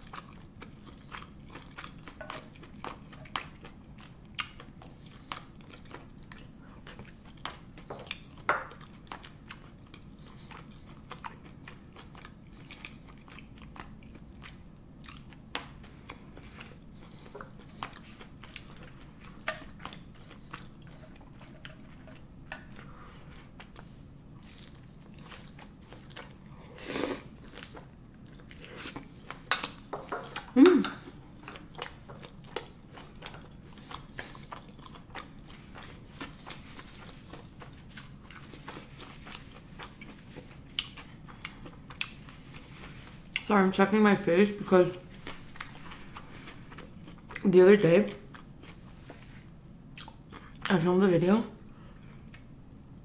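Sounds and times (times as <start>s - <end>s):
chewing and biting: 0.0s - 26.5s, 27.4s - 43.5s.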